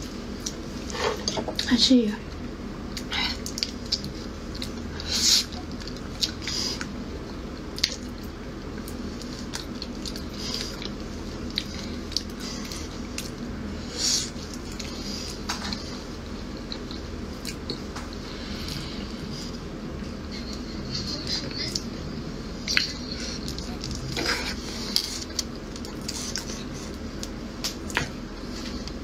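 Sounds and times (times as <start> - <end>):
wet squishy chewing: 7.6 - 13.6.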